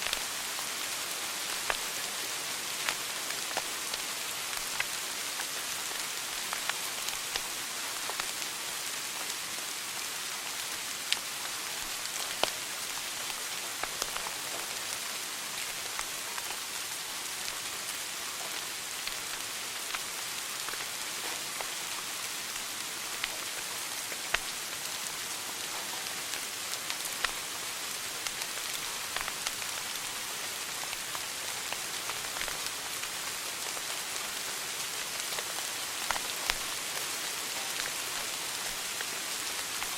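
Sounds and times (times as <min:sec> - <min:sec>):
wood fire crackling: 0:19.0 - 0:24.6, 0:26.3 - 0:34.0, 0:36.0 - 0:37.0.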